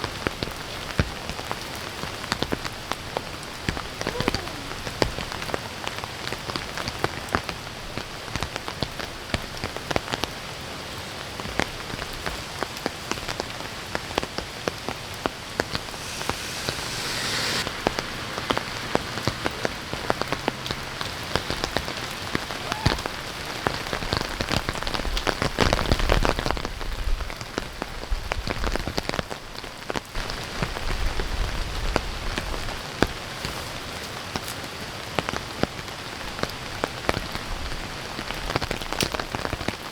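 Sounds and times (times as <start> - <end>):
low rumbles: 15.4 - 21.8
heavy rain falling: 15.4 - 25.3
brief hiss: 15.6 - 19.8.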